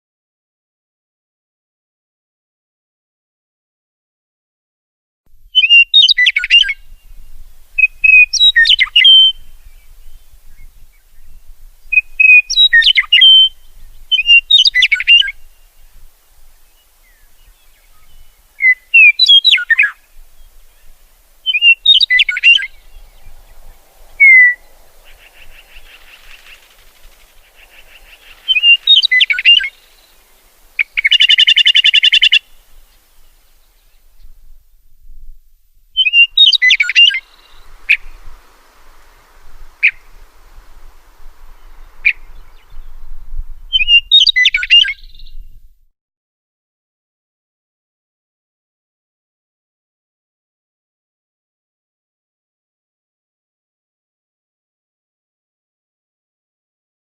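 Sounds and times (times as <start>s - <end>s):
songbird whistling phrases: 5.5s - 7.1s, 7.8s - 10.6s, 11.9s - 15.4s, 17.0s - 32.6s, 36.0s - 38.4s, 39.7s - 40.2s, 41.4s - 45.5s
harsh buzzy bird trill: 24.2s - 32.5s.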